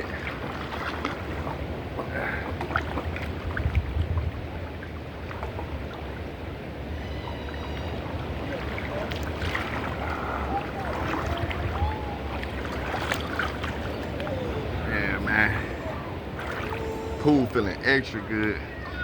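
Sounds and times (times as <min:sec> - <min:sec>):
pool water sloshing and splashing: 0:00.0 - 0:19.0.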